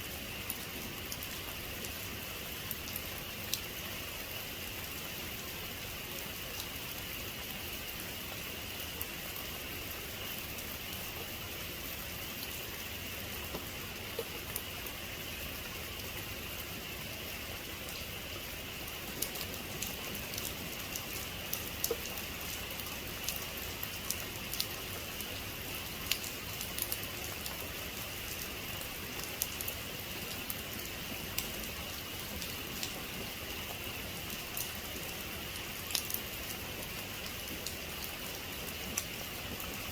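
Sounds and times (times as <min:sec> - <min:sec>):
steady rain: 0:00.0 - 0:39.9
raindrops ticking on hard surface: 0:12.4 - 0:15.0, 0:15.9 - 0:39.9.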